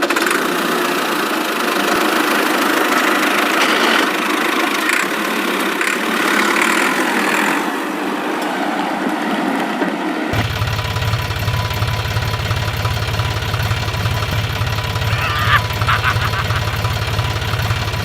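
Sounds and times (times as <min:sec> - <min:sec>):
small engine running: 0:00.0 - 0:07.8, 0:10.3 - 0:18.0.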